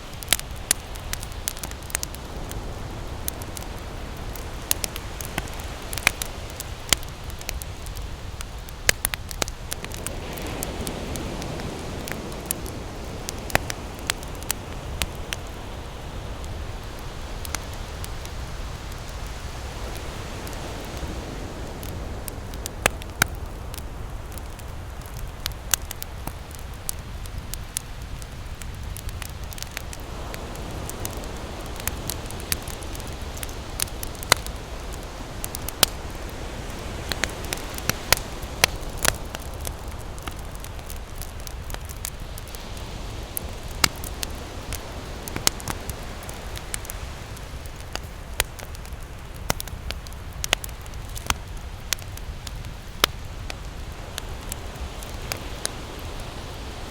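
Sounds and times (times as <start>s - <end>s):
campfire crackling: 0.0s - 56.9s
ocean surf rumble: 0.0s - 56.9s.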